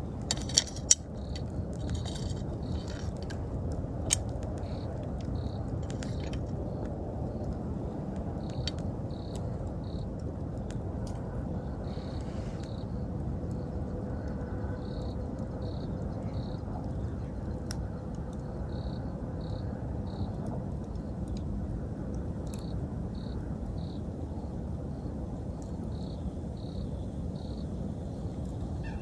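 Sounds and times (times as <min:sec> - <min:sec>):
campfire crackling: 0:00.0 - 0:29.0
insect chirping: 0:00.3 - 0:03.3, 0:04.6 - 0:07.5, 0:08.4 - 0:10.0, 0:11.6 - 0:12.9, 0:14.2 - 0:17.6, 0:18.4 - 0:29.0.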